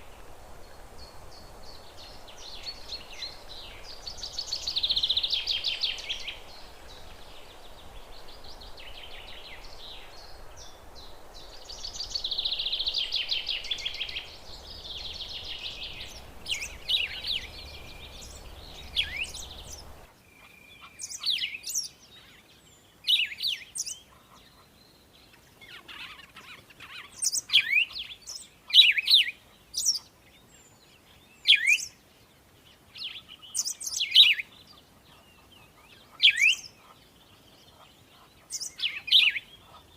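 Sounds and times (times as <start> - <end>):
background hiss: 0.0 - 39.9
buzzy trilling bird chirps: 1.0 - 20.1.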